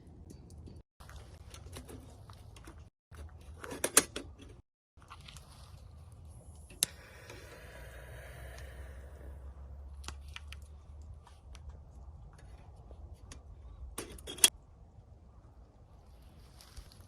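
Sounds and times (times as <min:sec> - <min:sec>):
low steady rumble: 0:05.0 - 0:16.6.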